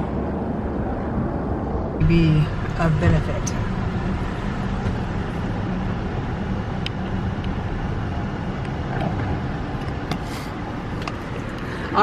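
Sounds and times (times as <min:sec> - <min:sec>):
car engine running: 0:00.0 - 0:12.0
road noise: 0:00.0 - 0:12.0.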